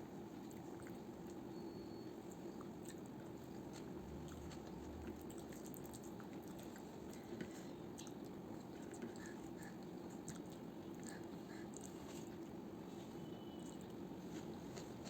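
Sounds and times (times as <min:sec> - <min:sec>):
low background hum: 0:00.0 - 0:15.0
person chewing food: 0:02.3 - 0:12.6.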